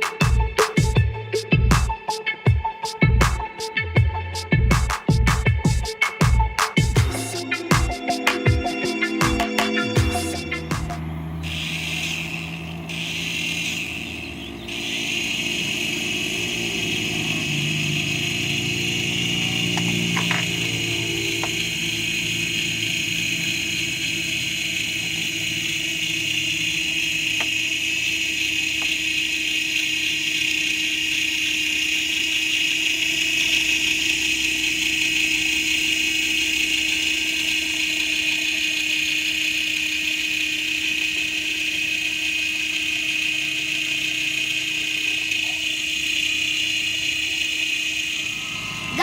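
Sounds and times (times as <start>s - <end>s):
toy helicopter rotor whine: 9.7s - 49.0s.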